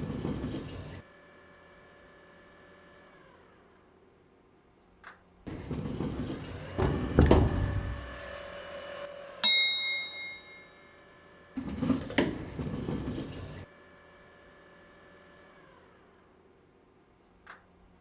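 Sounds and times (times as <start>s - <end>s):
rustling and knocking: 5.5s - 8.4s
sharp metallic ding: 9.4s - 10.9s.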